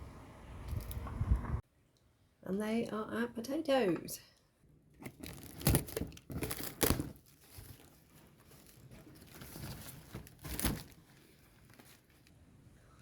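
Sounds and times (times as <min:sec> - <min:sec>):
rustling crinkling handling noise: 0:05.0 - 0:12.7.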